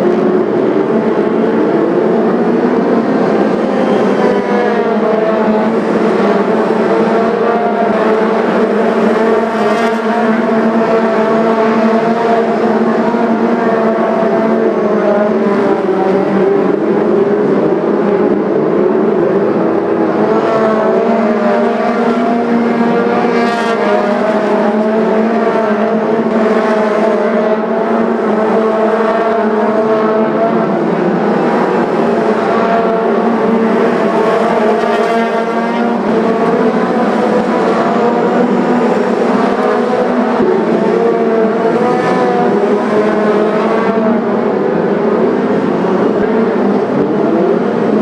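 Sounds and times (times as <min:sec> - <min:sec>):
racing car engines droning: 0:00.0 - 0:48.0.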